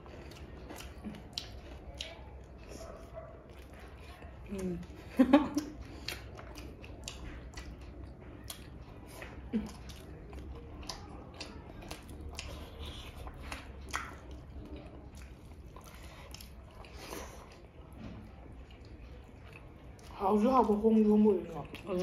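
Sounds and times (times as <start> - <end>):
wet chewing: 0.0 - 22.0
lip smacks: 0.3 - 4.8, 5.6 - 17.7.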